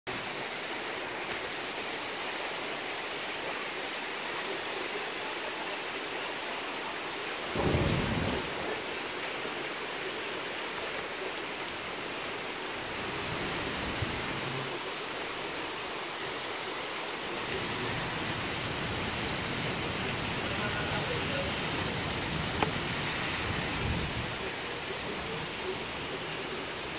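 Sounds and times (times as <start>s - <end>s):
heavy rain hissing: 0.1s - 26.9s
thunder rumbling: 7.5s - 8.9s.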